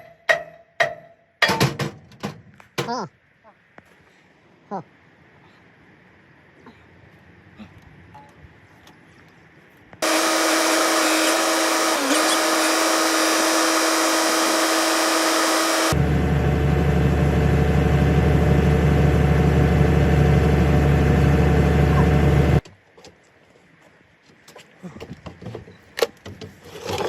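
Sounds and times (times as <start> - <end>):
power tool motor whine: 10.0 - 22.6.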